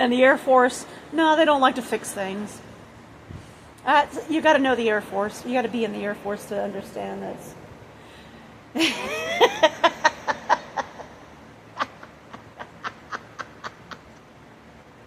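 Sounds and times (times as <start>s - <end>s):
woman laughing: 8.8s - 14.3s.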